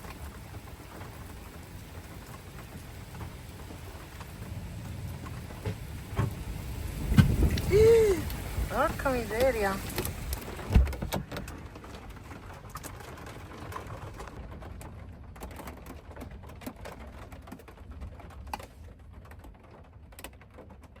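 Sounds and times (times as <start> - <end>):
strong wind buffeting a van: 0.0 - 20.0
light ticks and clicks on van body: 9.4 - 21.0.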